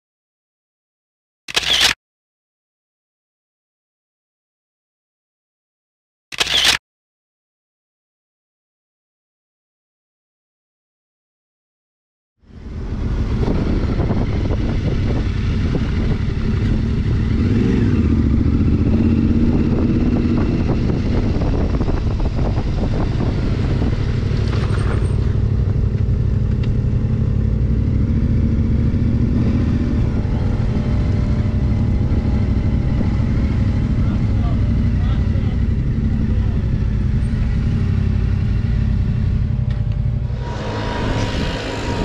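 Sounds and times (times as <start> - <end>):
motorcycle engine rumbling: 12.5 - 42.0.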